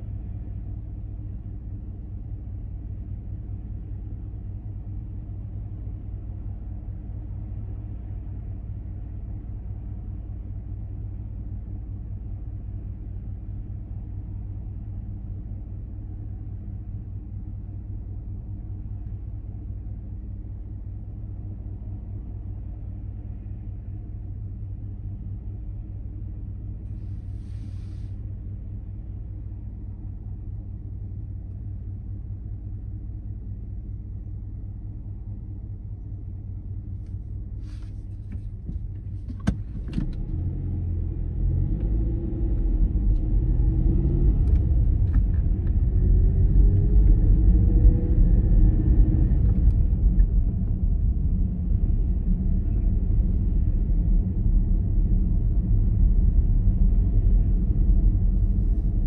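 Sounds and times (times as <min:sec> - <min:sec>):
car engine idling: 0:00.0 - 0:40.2.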